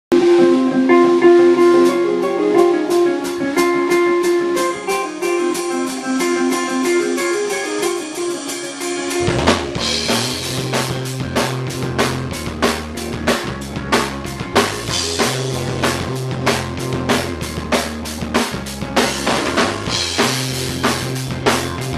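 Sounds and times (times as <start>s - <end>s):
guitar: 0.1s - 21.9s
drum beat: 9.2s - 10.6s
bass line: 9.2s - 21.9s.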